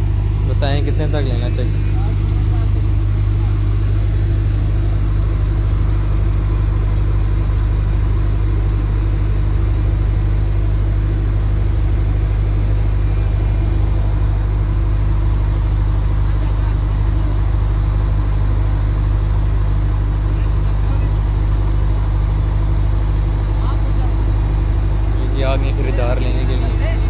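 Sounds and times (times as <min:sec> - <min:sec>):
low engine hum: 0:00.0 - 0:27.0.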